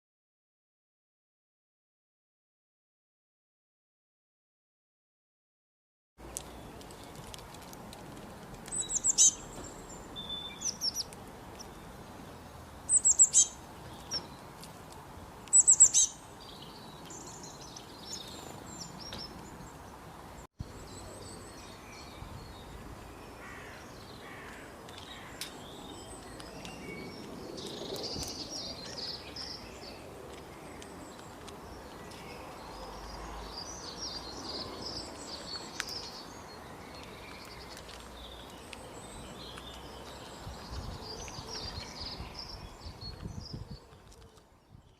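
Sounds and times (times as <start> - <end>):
songbirds chirping: 6.2 - 44.9.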